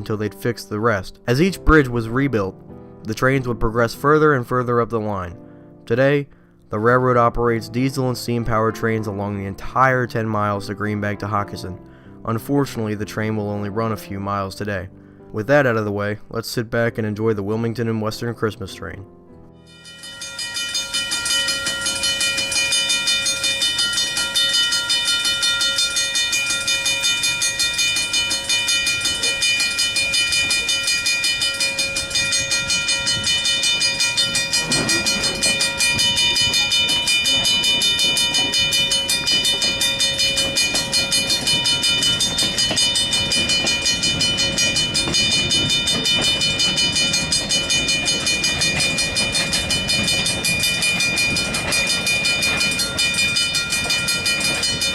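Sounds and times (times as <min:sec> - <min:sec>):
steady high tones: 0:19.7 - 0:54.9
train rhythmic pulsing: 0:19.7 - 0:54.9.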